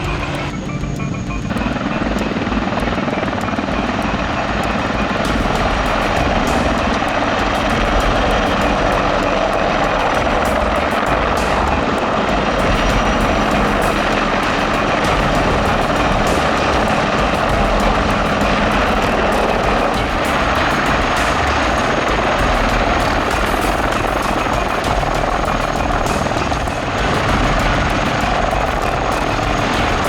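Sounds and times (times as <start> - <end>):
helicopter rotor and turbine drone: 0.0 - 30.0.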